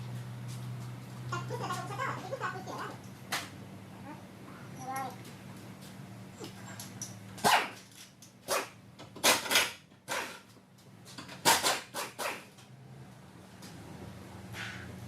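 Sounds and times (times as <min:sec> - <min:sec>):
steady low hum: 0:00.0 - 0:09.2
dog barking: 0:07.4 - 0:07.8, 0:08.5 - 0:08.8, 0:11.5 - 0:12.5.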